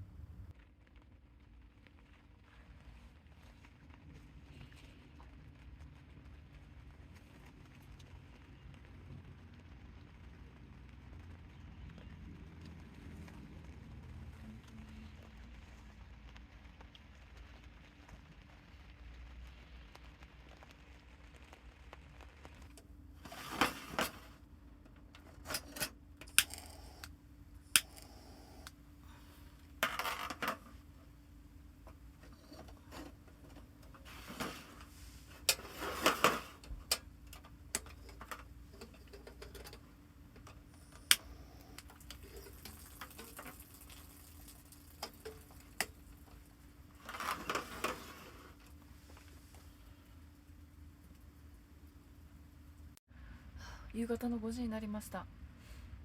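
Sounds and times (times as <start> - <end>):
sharp clicks and clatter: 31.8 - 41.2.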